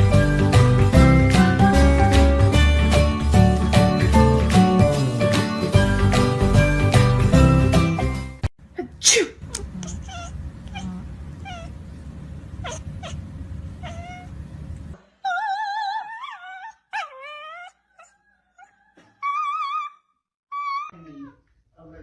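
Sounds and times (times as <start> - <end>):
cat meowing and yowling: 9.9 - 11.8, 13.8 - 14.4, 19.2 - 21.0.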